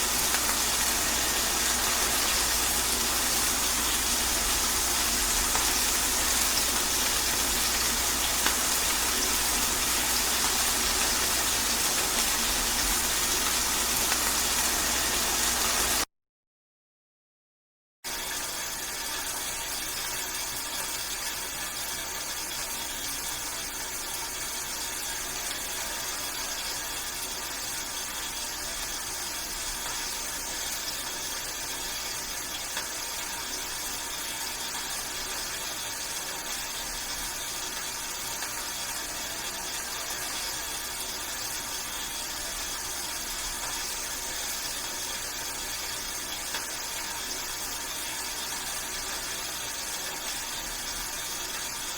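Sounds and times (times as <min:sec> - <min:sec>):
steady rainfall: 0:00.0 - 0:16.0.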